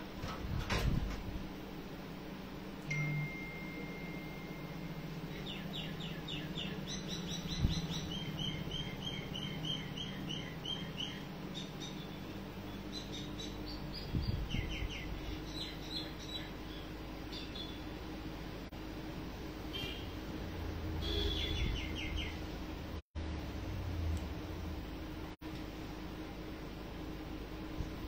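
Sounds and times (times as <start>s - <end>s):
low steady hum: 0.0s - 28.0s
bird chirping: 3.2s - 17.9s, 21.0s - 22.4s.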